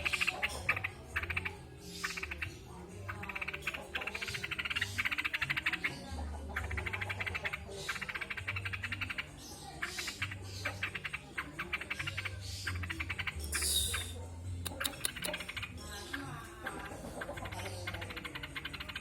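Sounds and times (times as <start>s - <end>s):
bird singing rattling trills: 6.7s - 16.5s.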